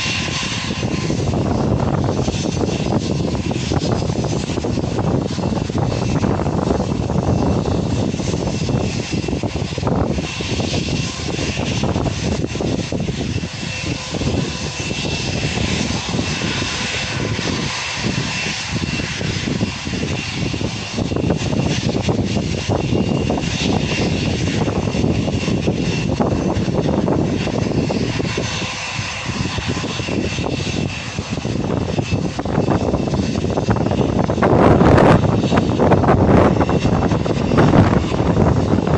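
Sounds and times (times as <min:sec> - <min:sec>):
jet engines running: 0:00.0 - 0:38.9.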